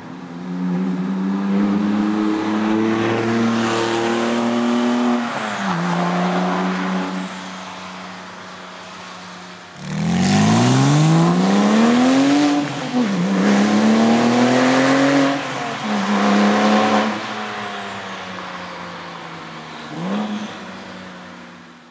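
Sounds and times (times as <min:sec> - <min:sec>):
car engine accelerating hard: 0:09.8 - 0:17.3.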